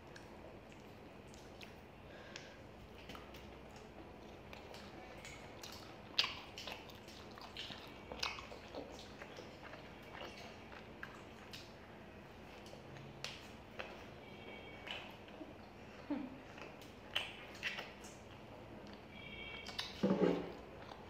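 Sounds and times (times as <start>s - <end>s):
wet chewing and lip smacks: 0.0s - 14.1s, 14.7s - 15.8s, 16.5s - 21.0s
sharp mouth clicks: 16.6s - 19.0s.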